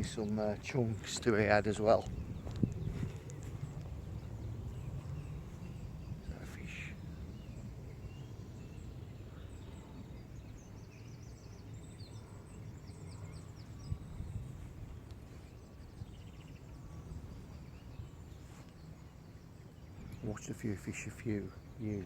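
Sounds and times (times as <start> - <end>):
low outdoor rumble: 0.0 - 22.0
small birds chirping trills: 0.0 - 22.0.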